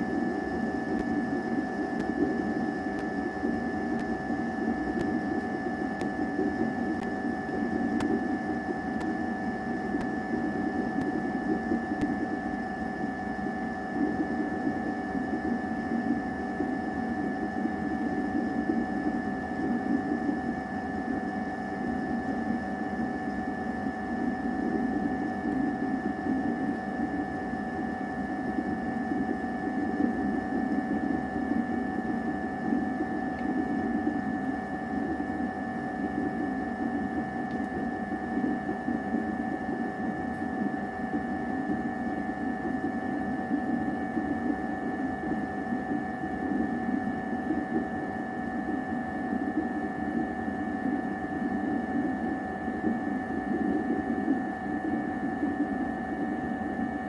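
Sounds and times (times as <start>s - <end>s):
mechanical hum with high tones: 0.0s - 57.0s.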